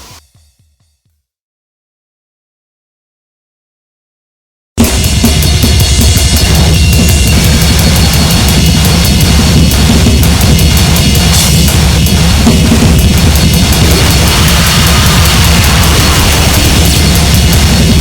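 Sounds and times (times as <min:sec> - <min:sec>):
pounding drums: 0:04.8 - 0:18.0
distorted electronic noise: 0:06.0 - 0:18.0.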